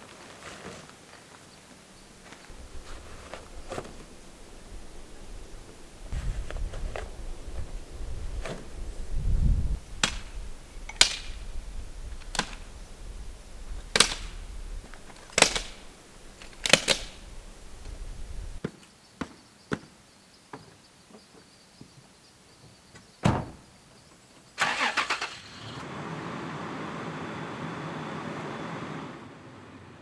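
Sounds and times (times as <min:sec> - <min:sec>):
low wind rumble: 0:01.9 - 0:18.6.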